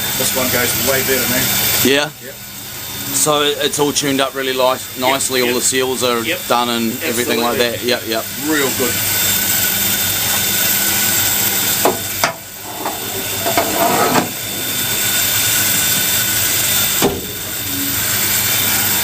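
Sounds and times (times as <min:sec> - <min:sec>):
loud steam hiss: 0:00.0 - 0:19.0.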